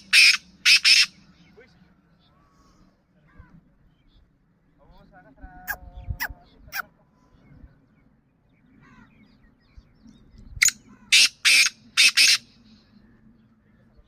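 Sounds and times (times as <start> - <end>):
bird squawking harshly: 0.0 - 1.2, 11.0 - 12.5.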